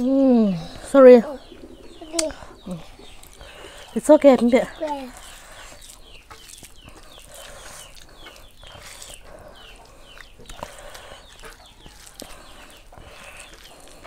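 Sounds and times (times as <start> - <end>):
birds chirping: 0.0 - 14.0
hands mixing rice on a plate: 3.0 - 14.0.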